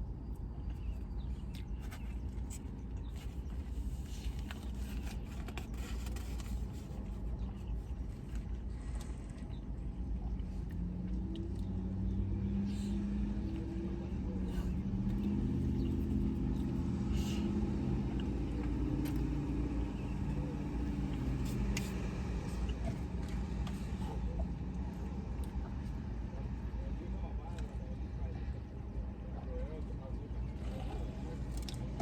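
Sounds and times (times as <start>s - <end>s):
small clicks and crinkles: 0.3s - 9.6s
car engine running: 10.0s - 28.9s.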